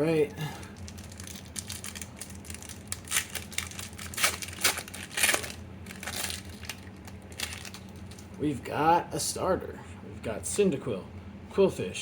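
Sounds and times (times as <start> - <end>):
foil wrapper crinkling and tearing: 0.4 - 8.4.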